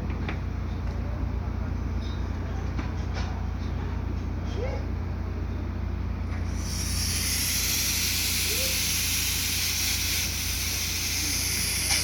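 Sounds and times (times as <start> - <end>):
loud steady hiss: 6.3 - 12.0.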